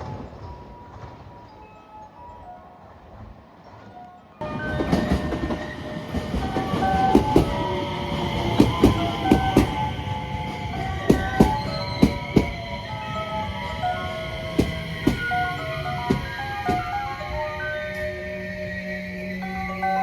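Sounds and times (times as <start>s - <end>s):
train wheels clacking over rail joints: 4.6s - 17.1s.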